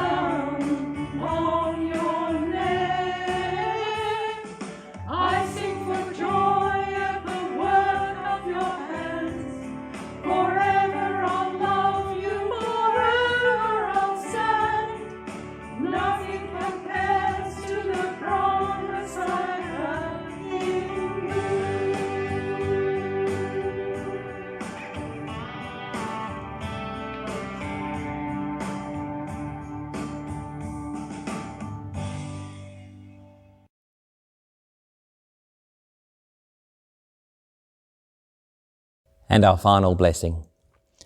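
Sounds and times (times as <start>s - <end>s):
group singing a hymn: 0.0s - 25.4s
instrumental accompaniment: 20.4s - 31.9s.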